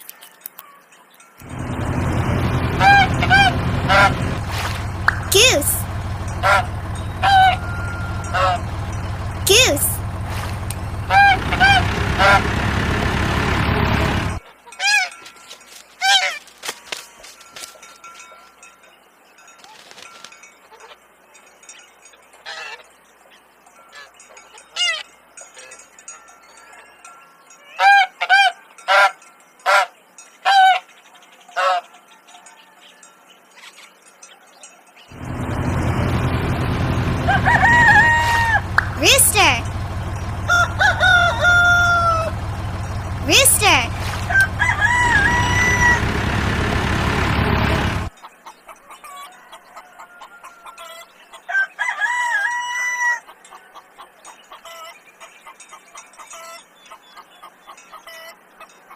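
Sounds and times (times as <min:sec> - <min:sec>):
tractor engine chugging: 0:01.4 - 0:14.4, 0:35.1 - 0:48.2
geese honking: 0:01.4 - 0:15.2, 0:27.8 - 0:30.8, 0:31.6 - 0:31.9, 0:35.1 - 0:48.1
rooster crowing: 0:02.5 - 0:04.2, 0:06.4 - 0:08.8, 0:11.1 - 0:12.5, 0:36.8 - 0:38.8, 0:40.2 - 0:42.6, 0:44.2 - 0:46.4, 0:49.1 - 0:53.4
steady low rumble: 0:35.1 - 0:39.0.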